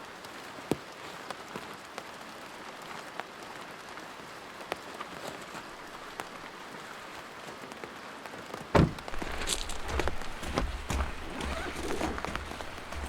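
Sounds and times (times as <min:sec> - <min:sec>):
steady rain: 0:00.0 - 0:13.0
loud thump: 0:08.7 - 0:13.0.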